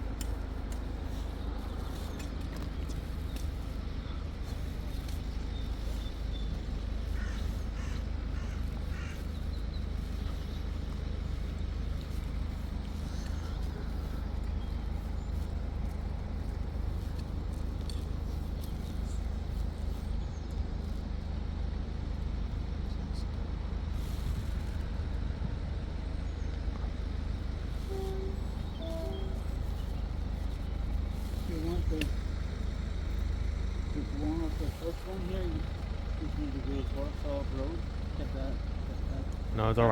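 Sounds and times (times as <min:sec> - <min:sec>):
low outdoor rumble: 0:00.0 - 0:39.9
bird cawing: 0:07.0 - 0:10.0.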